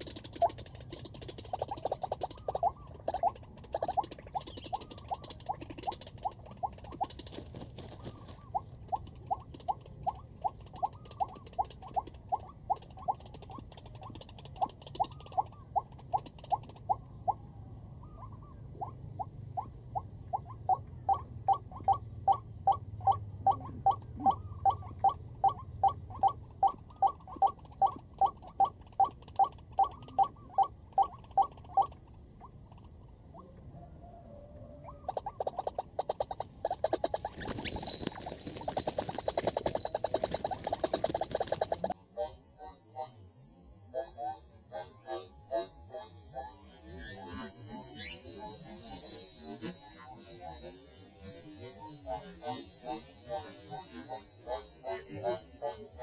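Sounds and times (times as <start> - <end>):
waterhen calling: 0.1 - 17.4, 19.6 - 32.0, 34.7 - 42.0.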